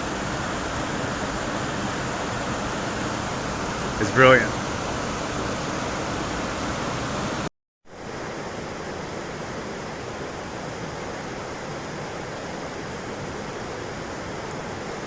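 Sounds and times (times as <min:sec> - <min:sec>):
waterfall roaring: 0:00.0 - 0:07.5
river water rushing: 0:00.0 - 0:15.0.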